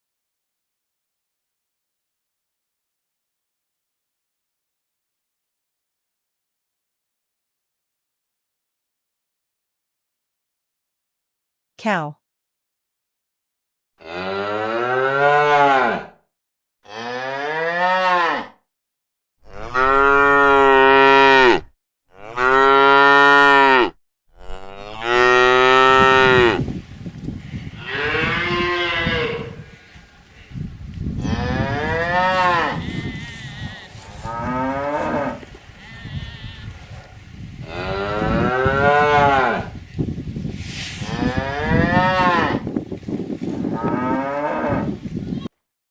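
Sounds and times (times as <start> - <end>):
cattle mooing: 14.0 - 16.2, 16.8 - 18.6, 19.5 - 26.6, 27.8 - 29.6, 31.2 - 36.8, 37.7 - 39.7, 41.1 - 42.7.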